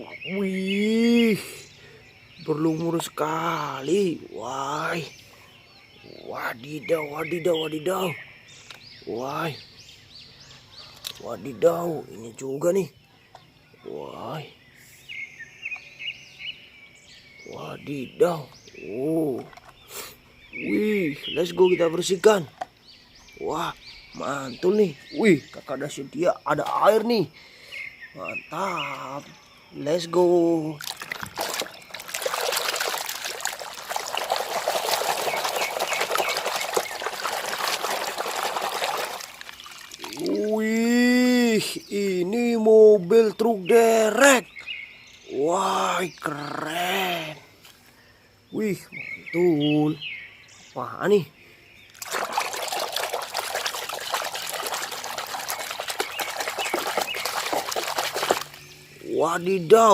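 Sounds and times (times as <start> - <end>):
water pouring and splashing: 30.7 - 40.6, 52.0 - 58.7.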